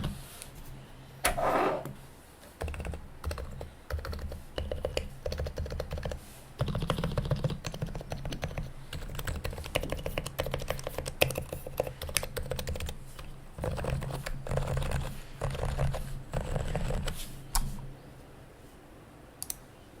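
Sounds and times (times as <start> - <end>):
soft keyboard typing: 2.6 - 17.7.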